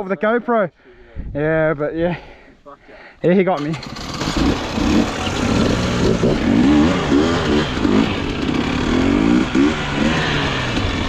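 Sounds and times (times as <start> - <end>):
dirt bike engine revving: 3.6 - 11.0.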